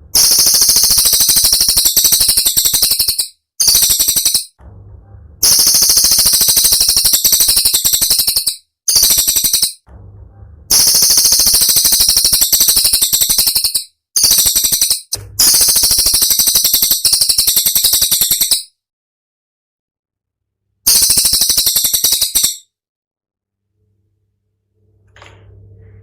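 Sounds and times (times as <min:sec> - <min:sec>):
songbird rattling trills: 0:00.2 - 0:04.6, 0:05.4 - 0:09.8, 0:10.7 - 0:18.7, 0:20.9 - 0:22.6.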